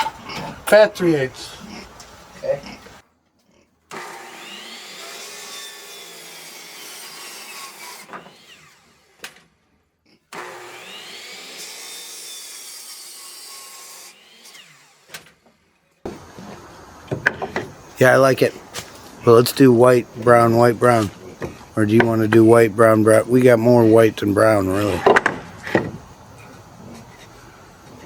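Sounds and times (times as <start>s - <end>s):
power saw cutting board: 3.9s - 9.6s, 10.3s - 26.1s.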